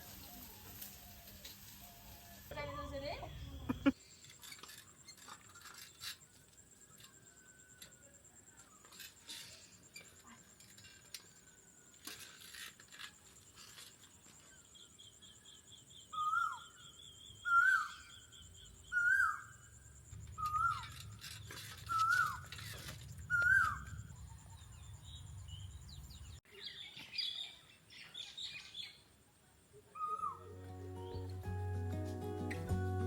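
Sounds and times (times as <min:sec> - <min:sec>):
soft bird chirps and trills: 0:02.0 - 0:07.8, 0:08.5 - 0:29.1, 0:29.8 - 0:31.4
bird falling call: 0:20.4 - 0:21.0, 0:21.8 - 0:22.5, 0:23.3 - 0:24.6.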